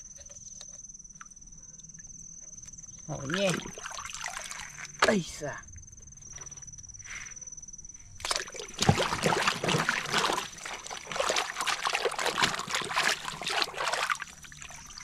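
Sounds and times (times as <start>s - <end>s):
water splashing and sloshing: 3.1s - 5.0s, 8.2s - 15.0s.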